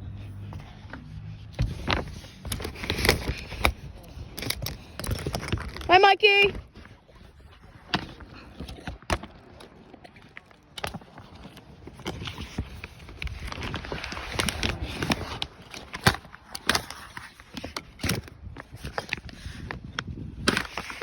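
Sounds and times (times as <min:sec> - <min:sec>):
plastic wrap crackling and rustling: 0:01.8 - 0:06.4, 0:08.1 - 0:21.0
sharp plastic cracks: 0:11.9 - 0:21.0.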